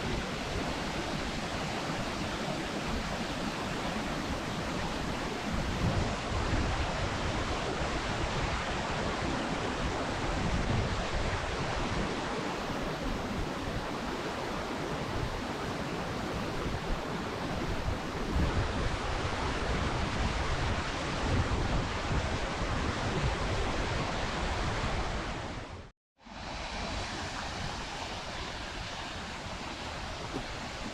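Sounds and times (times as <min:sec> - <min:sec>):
wind buffeting microphone: 0:00.0 - 0:25.8, 0:26.8 - 0:30.9.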